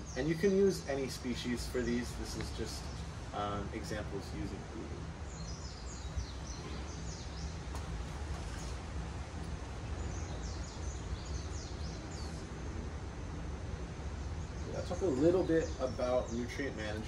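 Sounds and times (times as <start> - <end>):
steady low hum: 0.0 - 17.0
small bird chirping: 5.2 - 12.6.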